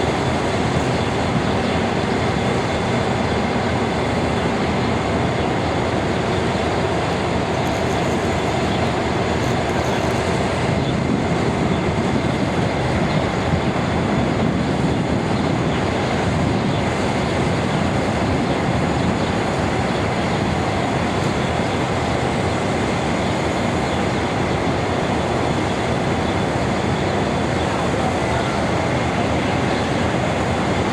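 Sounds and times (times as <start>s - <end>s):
passenger train running on rails: 0.0s - 30.9s.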